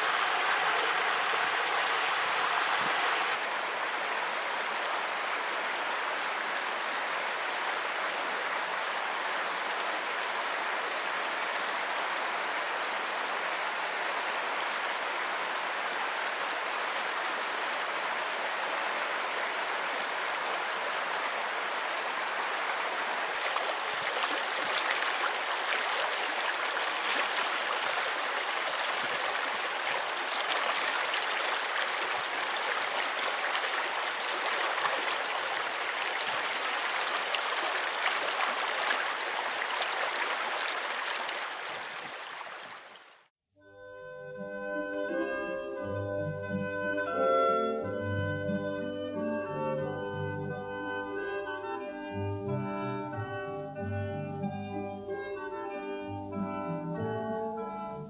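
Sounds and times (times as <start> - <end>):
water splashing: 0.0 - 3.4, 19.5 - 43.3
creek water running: 0.0 - 43.3.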